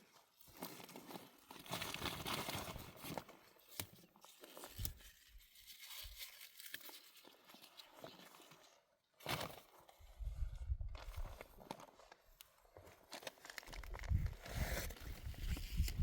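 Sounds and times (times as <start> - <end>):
leaves and stems rustling: 0.4 - 9.8.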